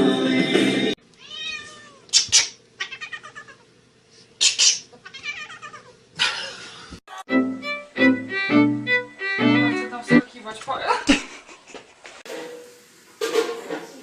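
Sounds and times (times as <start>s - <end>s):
music: 0.0s - 1.0s, 7.1s - 10.3s
cat meowing: 1.2s - 3.6s, 5.0s - 6.0s.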